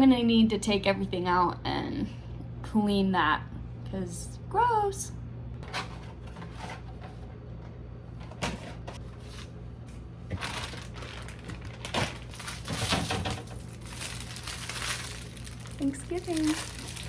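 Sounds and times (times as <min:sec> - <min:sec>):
fridge low hum: 0:00.0 - 0:17.0
plastic rustling: 0:10.2 - 0:17.0.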